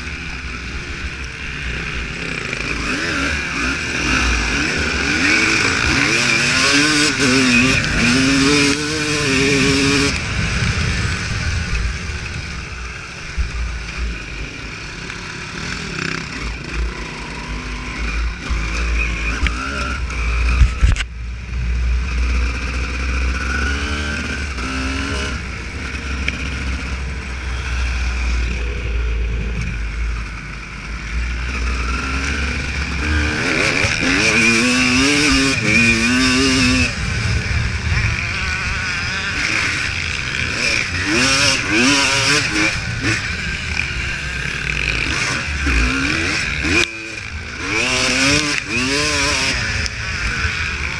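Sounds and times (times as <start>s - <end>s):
motocross bike engine revving: 0.0s - 50.9s.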